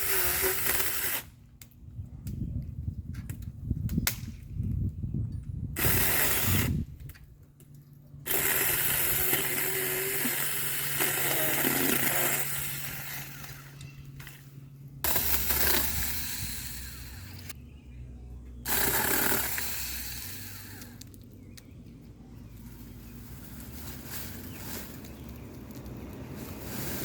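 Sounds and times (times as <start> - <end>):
electric chainsaw running: 0.0 - 1.3, 5.8 - 6.8, 8.2 - 14.4, 15.0 - 17.6, 18.6 - 21.1.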